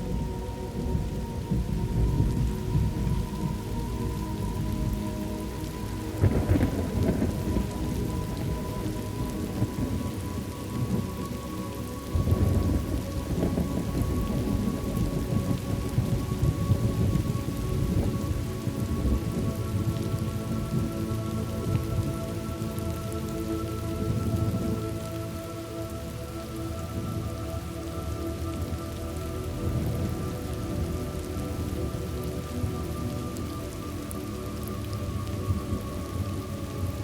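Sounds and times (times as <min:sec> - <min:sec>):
faint sustained tones: 0:00.0 - 0:37.0
steady rain: 0:00.0 - 0:37.0
rolling thunder: 0:00.1 - 0:05.2, 0:06.1 - 0:11.1, 0:12.1 - 0:20.9.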